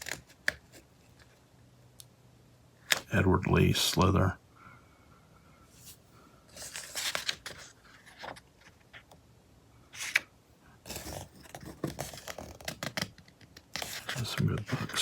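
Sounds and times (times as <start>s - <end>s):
magazine pages turning: 5.8s - 9.1s, 10.0s - 10.3s, 10.9s - 15.0s.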